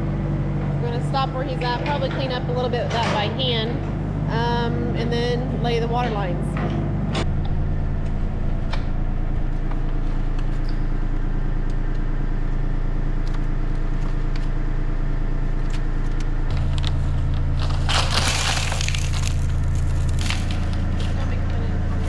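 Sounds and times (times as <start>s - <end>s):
excavator engine running: 0.0s - 22.0s
earth crunching being dug: 16.5s - 21.2s.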